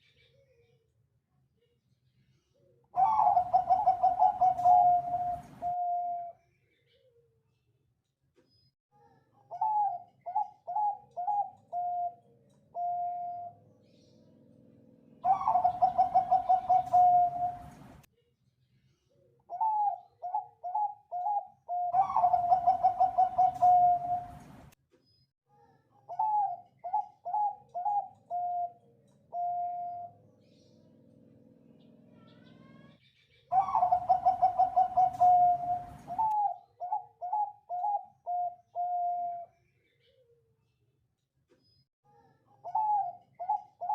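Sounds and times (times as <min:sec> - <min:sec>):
dove cooing: 0:03.0 - 0:06.3, 0:09.5 - 0:13.6, 0:15.2 - 0:18.0, 0:19.5 - 0:24.6, 0:26.1 - 0:30.2, 0:33.5 - 0:39.5, 0:42.6 - 0:43.9.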